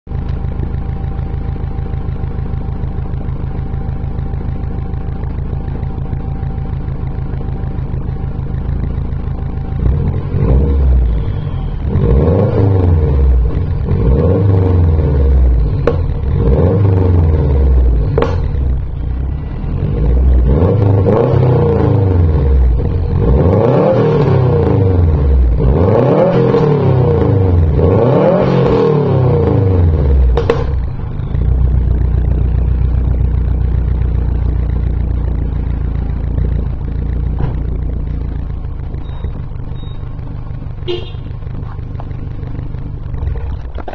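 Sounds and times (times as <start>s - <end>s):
car engine idling and revving: 0.0s - 43.9s.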